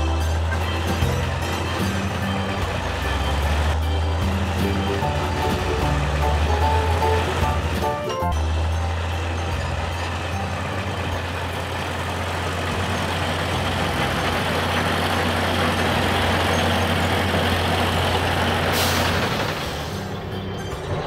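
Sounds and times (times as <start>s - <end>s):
heavy truck engines running: 0.0s - 21.0s
air brakes hissing: 18.4s - 20.3s.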